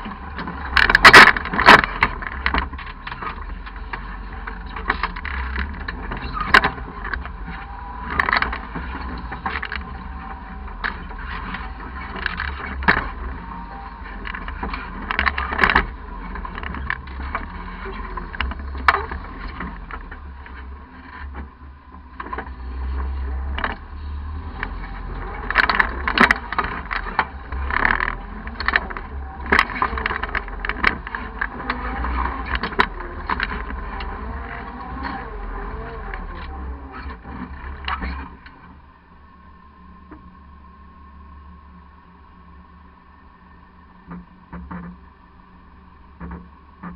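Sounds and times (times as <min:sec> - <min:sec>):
low engine rumble: 0:00.0 - 0:46.9.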